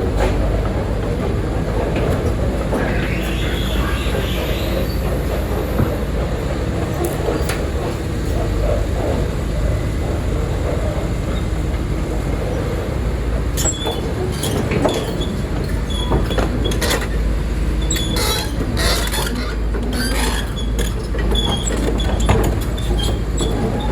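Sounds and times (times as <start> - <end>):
heavy machinery rumbling: 0.0 - 23.9
metallic squeaks and scrapes: 2.7 - 5.6, 17.8 - 23.9.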